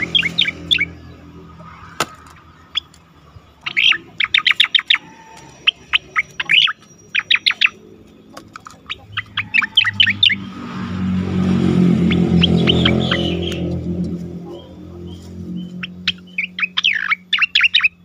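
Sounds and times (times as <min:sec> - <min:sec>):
bird whistled chirps: 0:03.6 - 0:07.9, 0:12.2 - 0:13.8, 0:14.4 - 0:18.0
low rumbling noise: 0:09.0 - 0:16.4.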